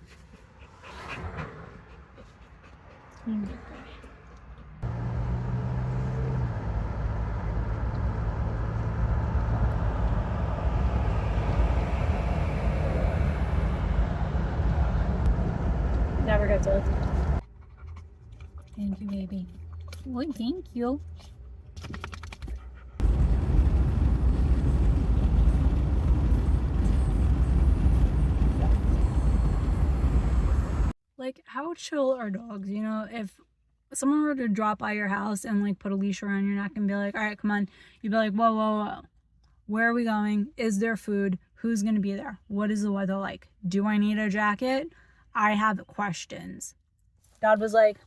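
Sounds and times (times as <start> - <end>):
car road and wind noise: 4.2 - 18.1, 23.0 - 31.0.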